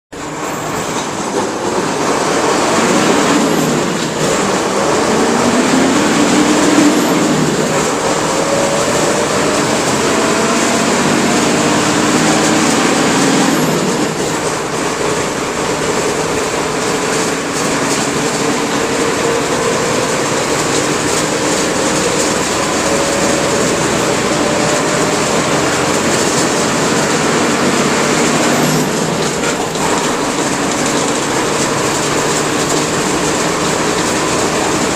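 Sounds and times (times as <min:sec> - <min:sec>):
bus engine running under load: 0:00.1 - 0:34.9
heavy ride noise: 0:00.1 - 0:34.9.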